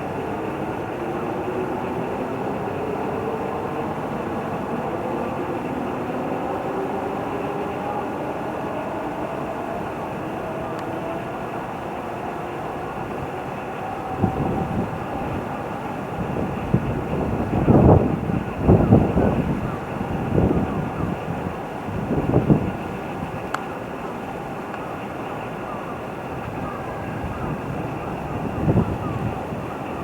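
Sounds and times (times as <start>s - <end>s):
faint whining tones: 0.0s - 30.0s
train rumbling: 0.0s - 30.0s.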